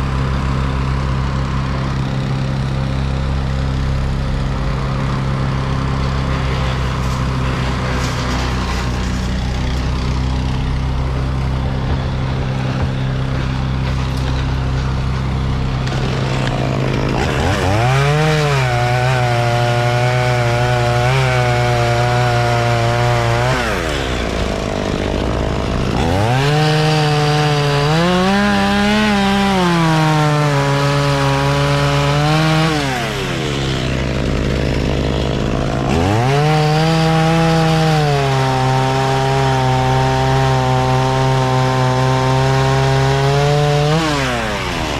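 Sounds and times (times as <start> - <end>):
chainsaw revving and cutting: 0.0 - 44.9
engine hum: 0.0 - 44.9.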